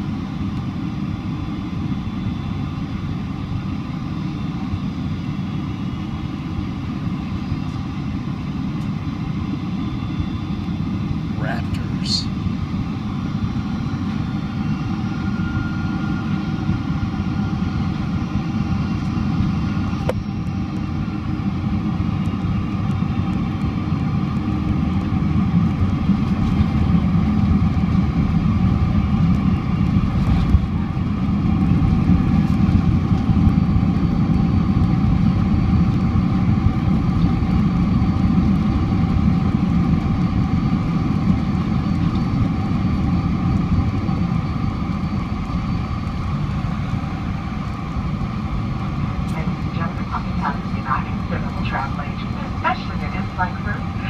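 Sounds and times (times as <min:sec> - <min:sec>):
airplane cabin rumble: 0:00.0 - 0:54.0
jet engines droning: 0:00.0 - 0:54.0.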